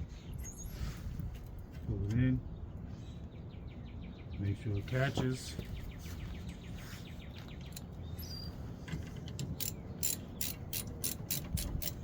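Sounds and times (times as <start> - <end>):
bird chirping: 5.5 - 8.7
ratchet wrench clicking: 9.6 - 12.0.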